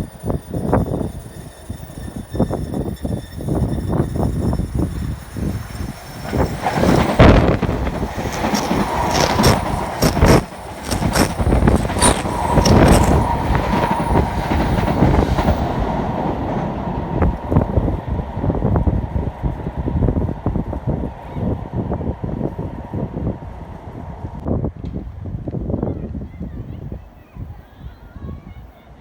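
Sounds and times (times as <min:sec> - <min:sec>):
train rumble: 0:00.0 - 0:29.0
train wheels clattering: 0:00.2 - 0:17.9.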